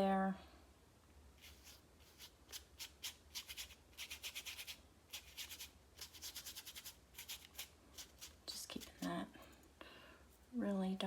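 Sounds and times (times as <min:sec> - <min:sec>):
paintbrush brushing on paper: 0:01.4 - 0:09.2.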